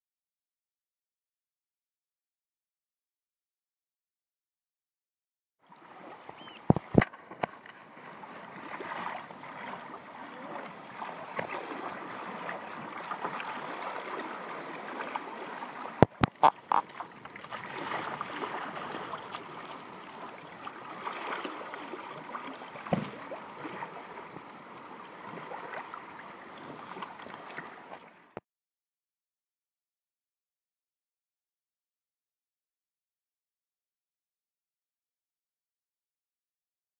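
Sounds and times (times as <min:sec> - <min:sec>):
water splashing around kayak: 0:05.6 - 0:28.4.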